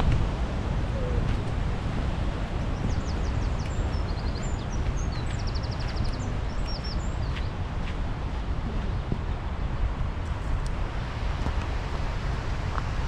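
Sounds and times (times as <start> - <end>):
wind on microphone: 0.0 - 13.0
songbird chirping and trilling: 2.7 - 7.5.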